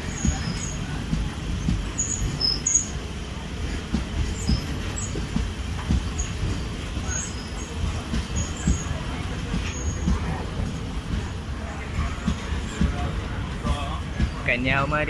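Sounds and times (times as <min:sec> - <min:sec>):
train rumbling past: 0:00.0 - 0:15.0
wheels squeaking: 0:01.6 - 0:03.0, 0:03.6 - 0:13.0.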